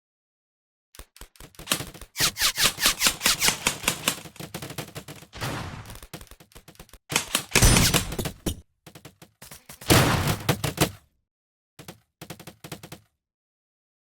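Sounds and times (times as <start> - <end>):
airsoft guns firing bursts: 1.1 - 8.2.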